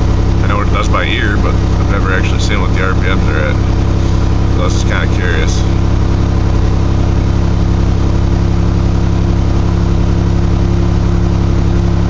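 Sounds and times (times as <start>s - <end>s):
engine running at fast idle: 0.0s - 12.0s.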